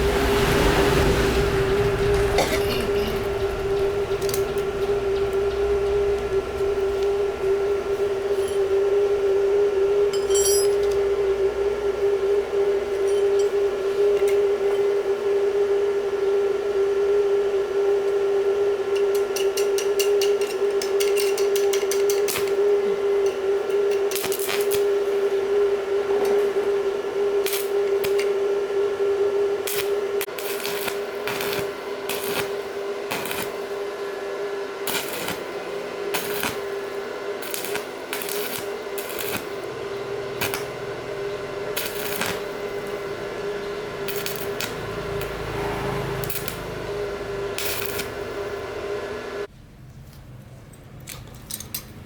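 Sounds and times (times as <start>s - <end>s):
machine humming: 0.0s - 49.5s.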